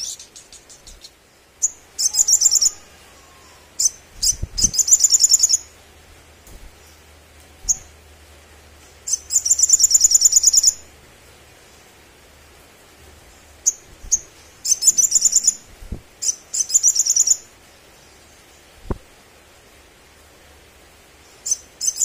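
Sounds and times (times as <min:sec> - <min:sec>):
bird chattering trills: 0:00.0 - 0:05.7, 0:13.6 - 0:15.6.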